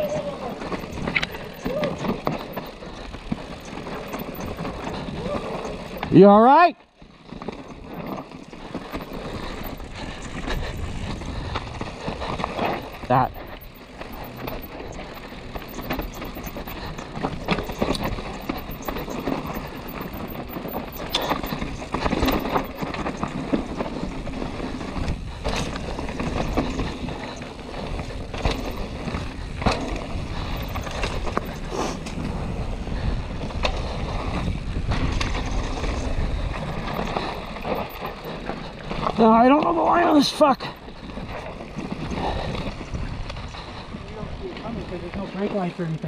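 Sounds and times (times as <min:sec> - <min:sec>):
bike rattling over rocks: 0:00.0 - 0:46.0
bike tyre and trail noise: 0:00.0 - 0:46.0
wind on the microphone: 0:24.9 - 0:37.9, 0:40.9 - 0:44.9.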